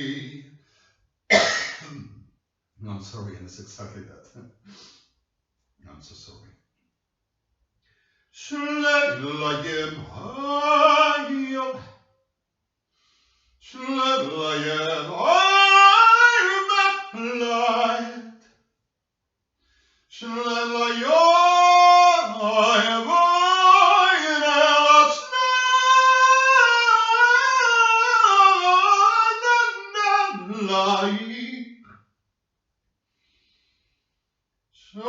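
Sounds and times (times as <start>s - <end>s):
person singing unaccompanied: 8.4s - 11.8s, 13.7s - 18.2s, 20.2s - 31.6s.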